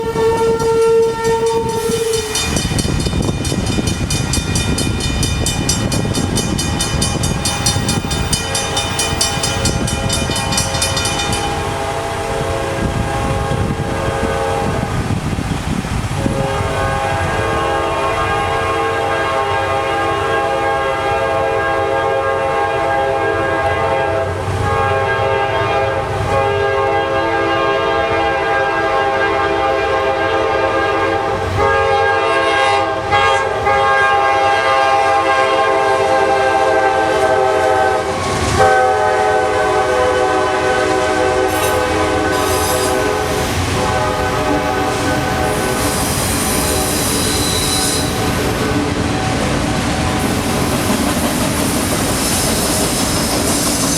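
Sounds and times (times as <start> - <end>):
train horn: 0.0 - 3.8, 5.8 - 15.2, 16.1 - 53.9
crossing bells ringing: 0.0 - 14.7, 41.5 - 53.9.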